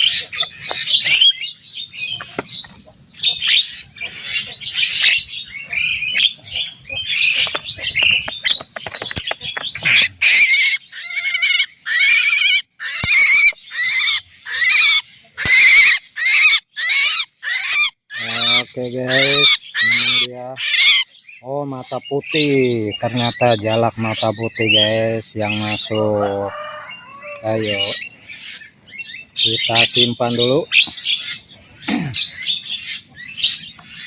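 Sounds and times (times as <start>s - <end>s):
myna harsh chattering squawks: 9.4s - 21.1s.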